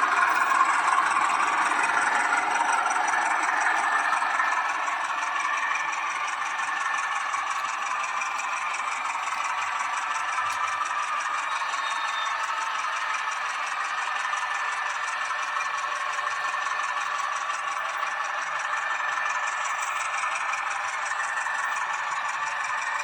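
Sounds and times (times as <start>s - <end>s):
fast fine rattle: 0.0s - 11.3s
model train motor whirring: 0.0s - 15.0s.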